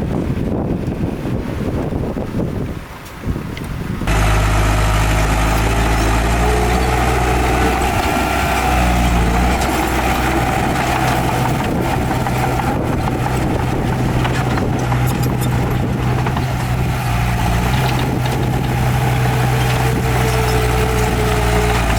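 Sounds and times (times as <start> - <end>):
wind buffeting microphone: 0.0 - 21.9
heavy diesel engine running: 4.0 - 21.9.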